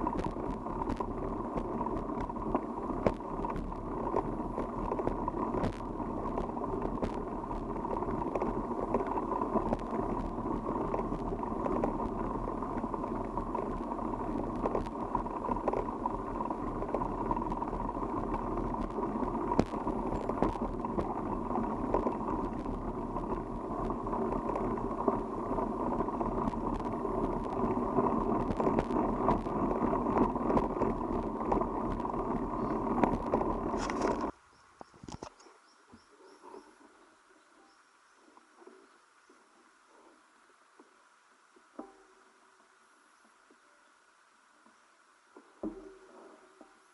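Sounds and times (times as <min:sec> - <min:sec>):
bicycle tyre noise: 0:00.0 - 0:35.4
small clicks and rattles: 0:00.0 - 0:35.6.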